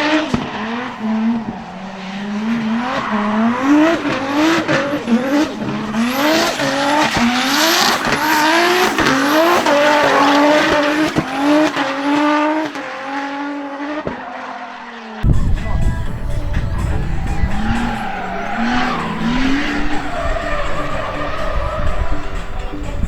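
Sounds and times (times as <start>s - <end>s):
exhaust pops: 0.0s - 12.0s, 15.2s - 23.0s
car engine revving: 0.0s - 23.0s
tyres skidding and squealing: 0.0s - 23.0s
deep loud rumble: 15.2s - 23.0s.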